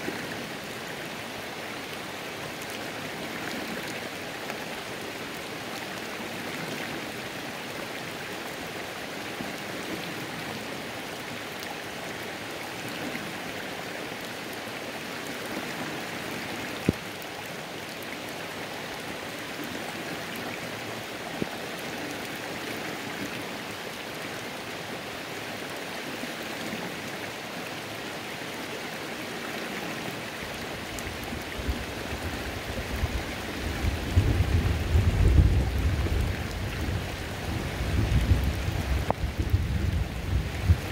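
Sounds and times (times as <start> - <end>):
flowing creek: 0.0 - 40.9
steady rain: 0.0 - 40.9
distant thunder rumble: 33.0 - 40.9.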